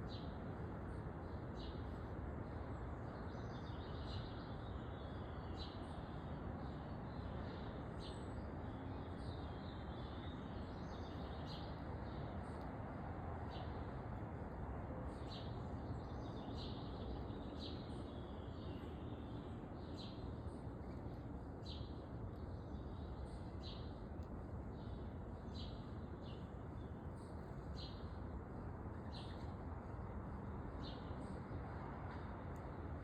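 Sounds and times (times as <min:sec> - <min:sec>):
songbirds chirping: 0:00.0 - 0:33.0.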